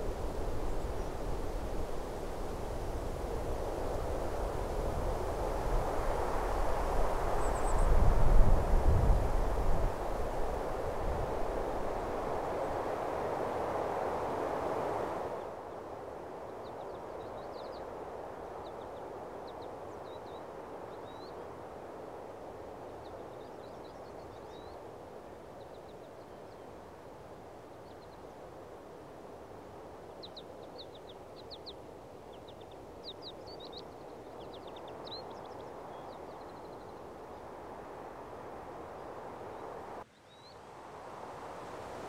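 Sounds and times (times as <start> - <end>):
outdoor ambience hiss: 0.0 - 42.0
small birds chirping: 30.2 - 37.8.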